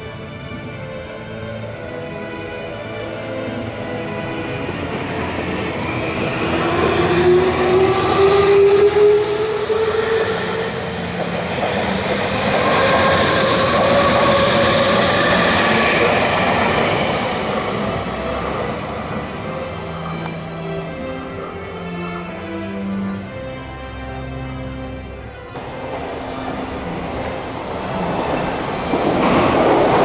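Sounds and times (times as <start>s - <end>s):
traction motors whining: 1.9s - 22.6s
train wheels running: 4.2s - 20.2s.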